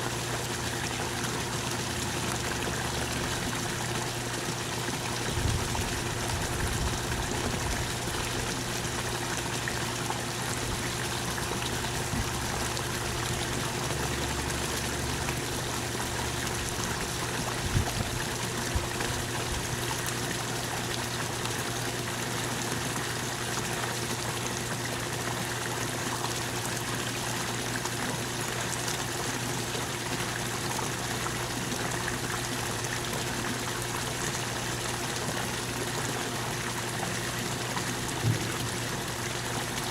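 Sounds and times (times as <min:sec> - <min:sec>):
rain falling and trickling: 0:27.6 - 0:39.9.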